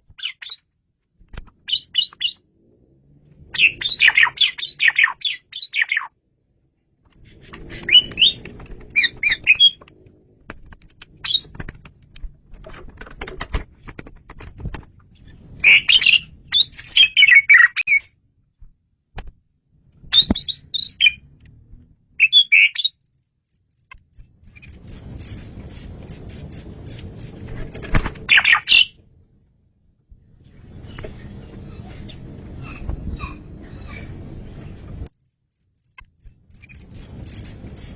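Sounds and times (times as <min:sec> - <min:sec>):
starling singing: 0:01.7 - 0:02.4, 0:03.5 - 0:06.1, 0:07.3 - 0:09.8, 0:11.2 - 0:11.6, 0:15.6 - 0:18.2, 0:20.1 - 0:21.2, 0:22.2 - 0:23.0, 0:28.3 - 0:29.0.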